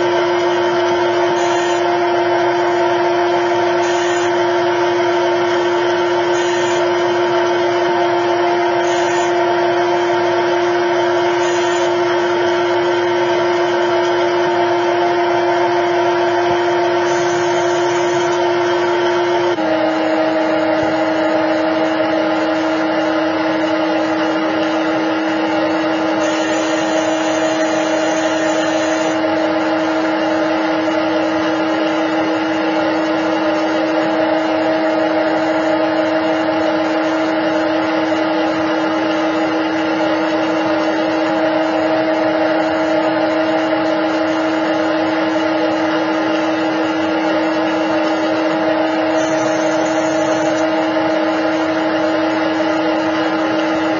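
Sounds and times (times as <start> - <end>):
machine hum: 0.0 - 53.9
pitched whine: 0.0 - 53.9.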